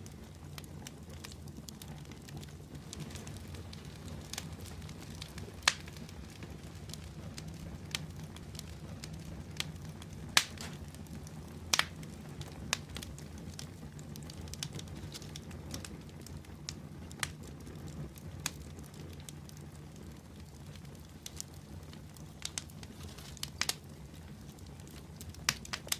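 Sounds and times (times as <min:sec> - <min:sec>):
low rumble of flame: 0:00.0 - 0:25.9
sharp fire pops: 0:00.0 - 0:25.9
wood fire crackling: 0:00.0 - 0:25.9.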